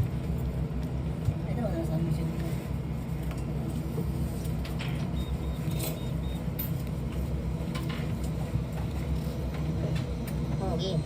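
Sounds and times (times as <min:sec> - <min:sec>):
faint high beeps: 0:05.2 - 0:06.5.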